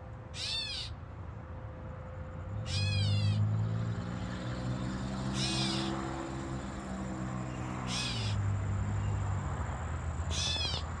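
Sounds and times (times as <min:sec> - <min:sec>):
catbird mewing calls: 0:07.9 - 0:08.4, 0:10.3 - 0:10.9.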